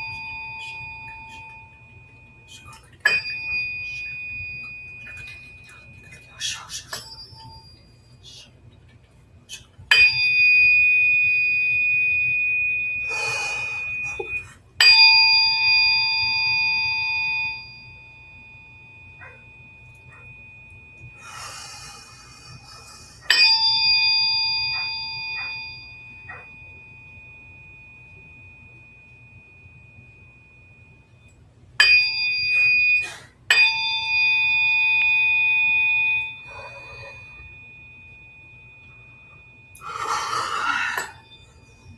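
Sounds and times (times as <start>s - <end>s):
tuning forks ringing: 0.0s - 8.5s, 9.9s - 41.9s.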